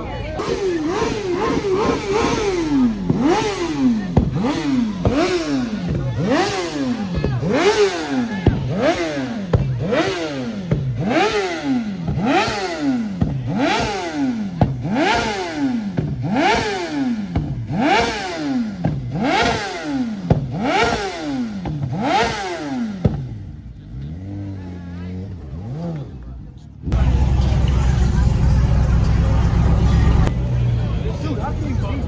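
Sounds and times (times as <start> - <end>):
car engine revving: 0.0 - 32.0
exhaust pops: 0.4 - 24.2.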